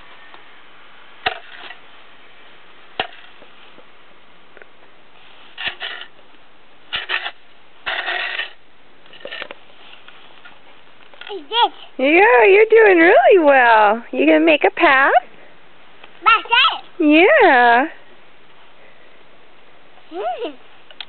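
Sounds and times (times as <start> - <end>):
bucket scraping and crunching snow: 1.2 - 1.9, 5.1 - 6.2, 6.9 - 11.8.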